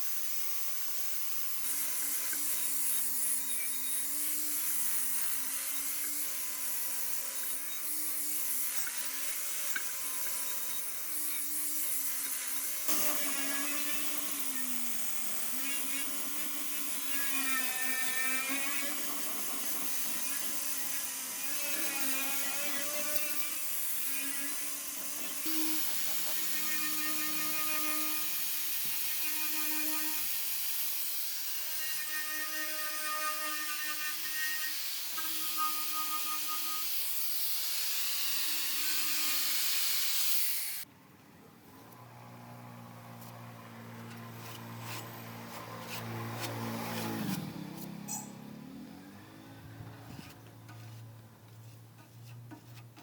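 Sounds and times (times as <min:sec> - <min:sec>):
power tool motor whining: 0:00.0 - 0:40.9, 0:41.9 - 0:51.2.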